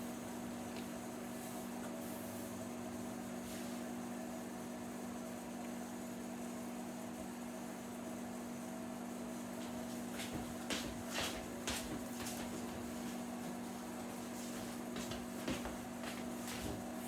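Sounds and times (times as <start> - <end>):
microwave oven humming: 0.0 - 17.0.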